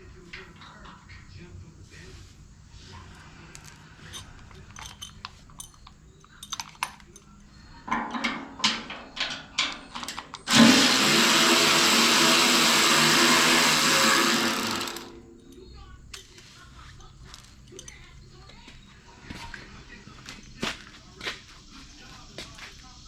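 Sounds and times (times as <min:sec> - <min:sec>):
metal parts clicking and clattering: 0:03.6 - 0:10.6
power drill running: 0:10.4 - 0:15.2.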